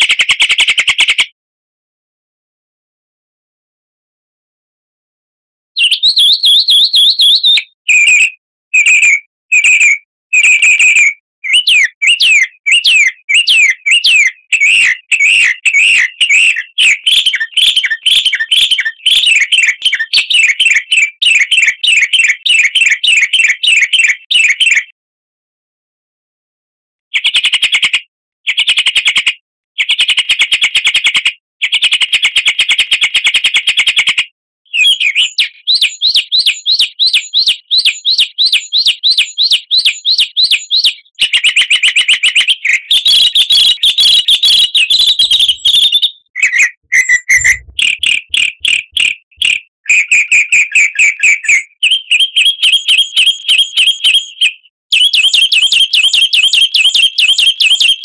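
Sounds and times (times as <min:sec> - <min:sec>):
fast bird song trills: 0:05.8 - 0:24.8, 0:31.8 - 0:58.0.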